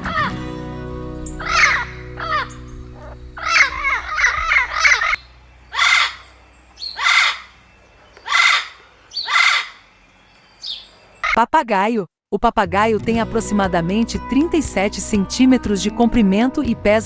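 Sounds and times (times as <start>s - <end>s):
parrot squawking: 0.0s - 0.4s, 1.3s - 7.6s, 8.2s - 9.9s
parrot screeching: 1.4s - 7.6s, 8.2s - 9.9s.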